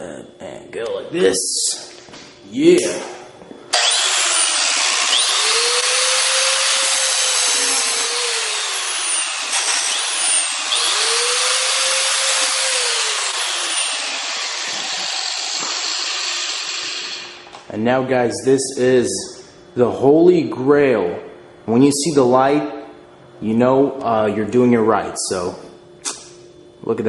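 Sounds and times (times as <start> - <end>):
angle grinder grinding metal: 3.7 - 17.5.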